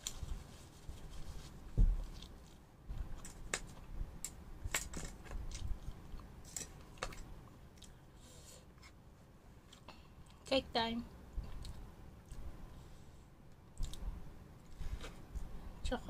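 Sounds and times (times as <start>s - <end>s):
chewing food: 5.5s - 8.0s, 11.4s - 12.5s, 13.6s - 14.9s.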